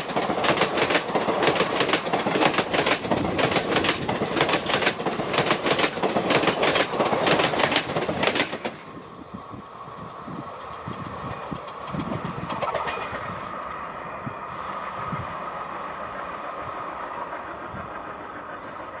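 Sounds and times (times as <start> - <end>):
train wheels clattering over rail joints: 0.0 - 9.0, 10.0 - 13.5
train rumble: 0.0 - 19.0.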